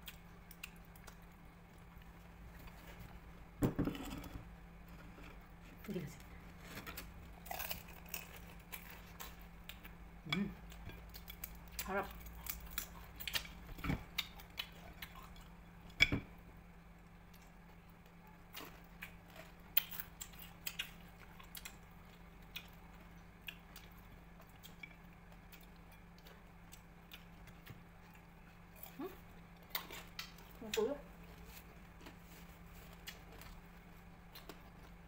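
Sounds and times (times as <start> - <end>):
crunching crispy fried skin: 6.6 - 9.9, 10.8 - 15.5.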